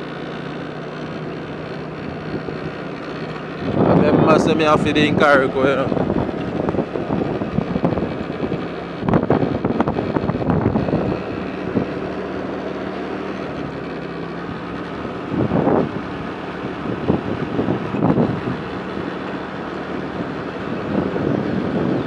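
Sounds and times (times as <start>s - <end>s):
engine hum: 0.0s - 22.0s
road noise: 0.0s - 22.0s
wind buffeting microphone: 3.4s - 12.3s, 14.4s - 22.0s.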